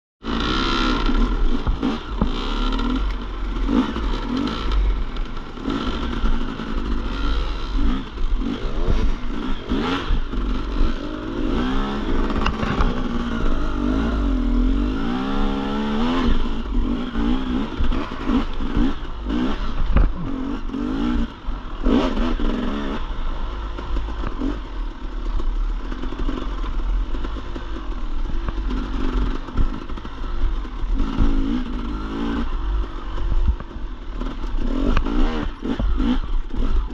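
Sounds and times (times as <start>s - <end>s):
dirt bike engine revving: 0.2s - 36.9s
clattering over rough ground: 12.1s - 13.7s.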